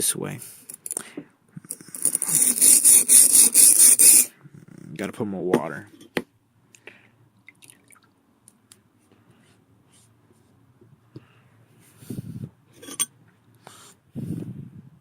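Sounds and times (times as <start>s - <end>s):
blade rubbing on sharpening stone: 1.9s - 4.3s.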